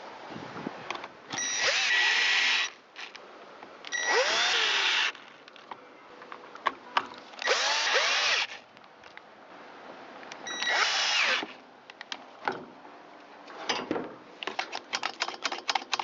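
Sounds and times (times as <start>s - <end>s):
cordless drill driving screws: 1.4s - 3.2s, 3.9s - 5.2s, 7.4s - 8.6s, 10.5s - 11.6s.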